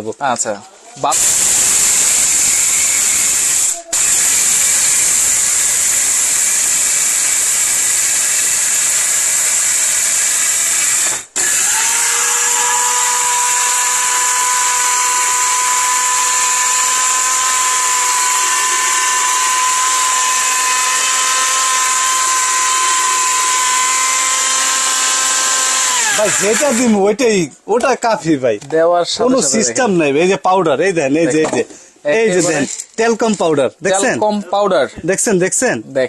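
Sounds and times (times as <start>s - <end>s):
blender grinding: 1.1s - 27.0s.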